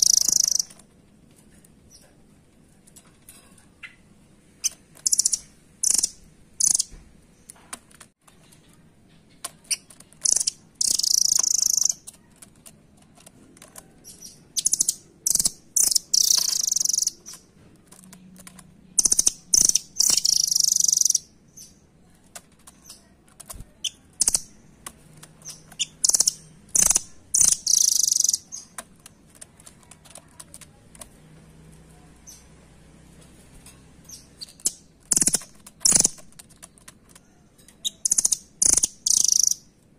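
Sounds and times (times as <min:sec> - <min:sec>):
bird calling with rattling trills: 0:00.0 - 0:00.8, 0:03.7 - 0:06.9, 0:08.4 - 0:12.1, 0:14.0 - 0:17.5, 0:19.0 - 0:21.8, 0:25.4 - 0:28.8, 0:34.0 - 0:39.7.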